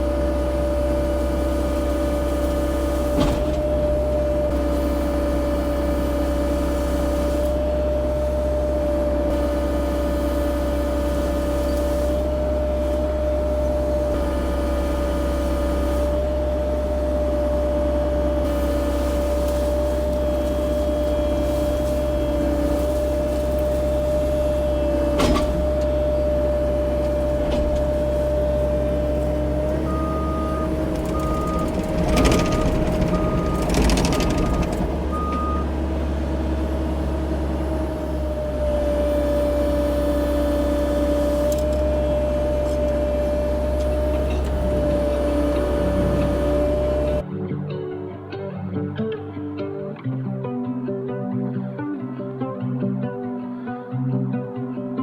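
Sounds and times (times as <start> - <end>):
mini excavator hum and whine: 0.0 - 50.1
travel alarm beeping: 29.7 - 35.7.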